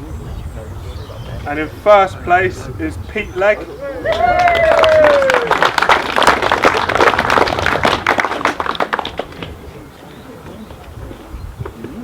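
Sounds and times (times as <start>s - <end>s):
crowd applauding: 3.5s - 10.0s.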